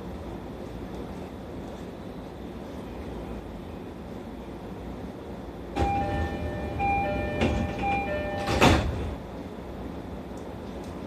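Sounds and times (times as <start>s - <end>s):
train low hum: 0.0s - 11.0s
two-note door chime: 5.8s - 8.7s
sliding doors thudding shut: 5.8s - 9.2s.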